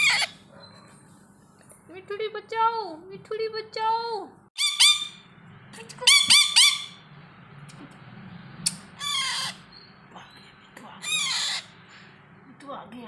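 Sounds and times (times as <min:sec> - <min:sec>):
parrot squawking: 0:00.0 - 0:00.5, 0:04.6 - 0:05.3, 0:05.9 - 0:07.1, 0:08.7 - 0:09.8, 0:11.0 - 0:11.8.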